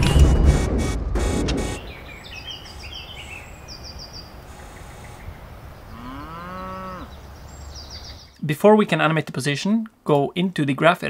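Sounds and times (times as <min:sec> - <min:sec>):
birds chirping: 0:01.6 - 0:08.7.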